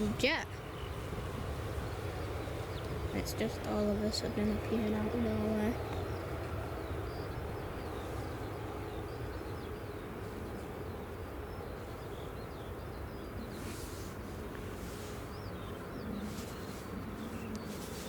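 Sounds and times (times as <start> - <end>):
low outdoor rumble: 0.0 - 18.0
small birds chirping: 0.0 - 18.0.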